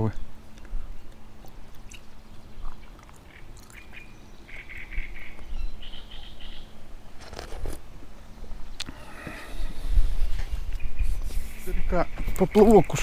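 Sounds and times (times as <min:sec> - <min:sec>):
wind rumbling on microphone: 0:08.5 - 0:13.0.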